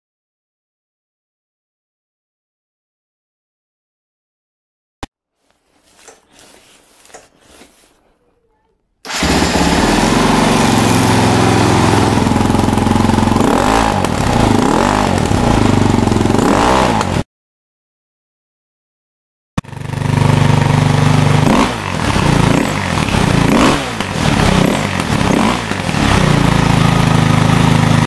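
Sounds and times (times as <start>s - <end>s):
motorcycle engine revving: 9.1s - 17.2s, 19.6s - 28.0s.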